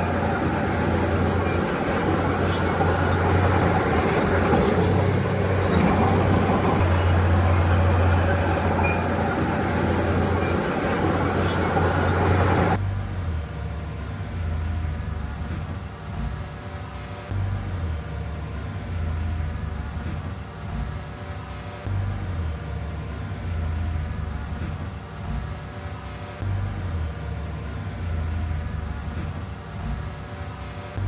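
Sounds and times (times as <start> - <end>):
bulldozer diesel engine droning: 0.0 - 16.3, 17.3 - 20.8, 26.4 - 29.8.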